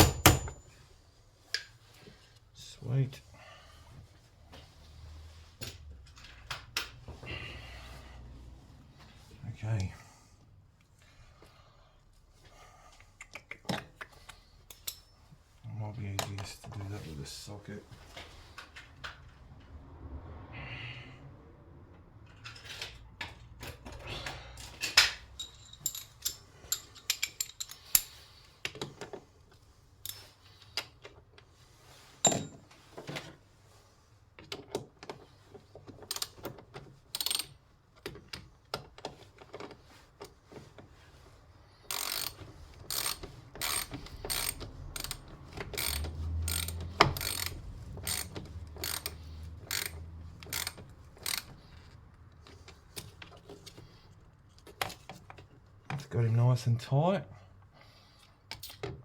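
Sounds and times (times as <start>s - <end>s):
ratchet wrench clicking: 36.1s - 36.4s, 37.1s - 37.5s, 41.9s - 51.8s.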